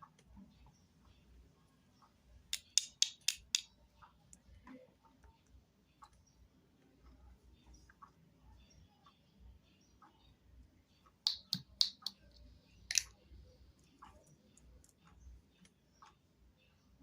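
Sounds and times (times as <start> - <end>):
object clicking: 2.5 - 3.7, 11.2 - 13.2.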